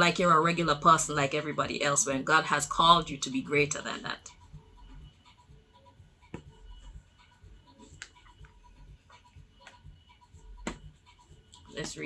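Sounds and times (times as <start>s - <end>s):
faint sharp clicks and taps: 6.3s - 6.6s, 7.8s - 9.9s.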